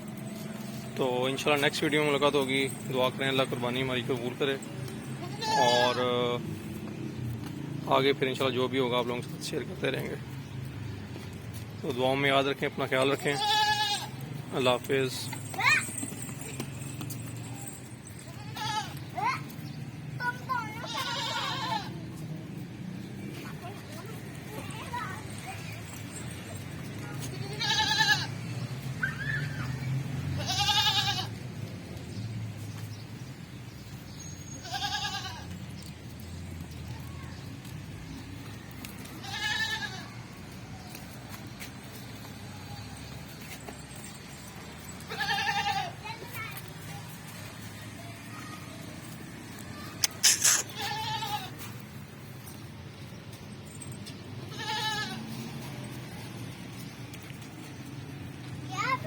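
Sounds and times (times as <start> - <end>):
goat bleating: 5.2 - 6.0, 13.3 - 14.2, 18.3 - 19.1, 20.7 - 22.0, 27.2 - 28.4, 30.4 - 31.4, 34.6 - 35.6, 39.1 - 40.2, 45.0 - 46.0, 50.0 - 51.7, 54.5 - 55.4.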